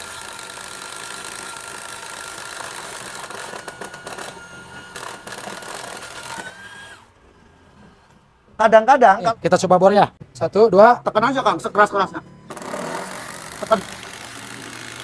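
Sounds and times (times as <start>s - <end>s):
impact driver hammering: 0.0s - 6.6s, 12.5s - 15.0s
motor whine: 0.0s - 7.2s, 12.1s - 15.0s.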